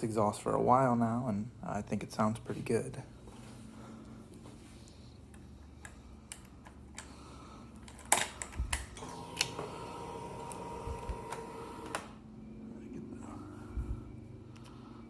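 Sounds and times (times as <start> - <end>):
fuel pump whine: 7.0 - 15.0.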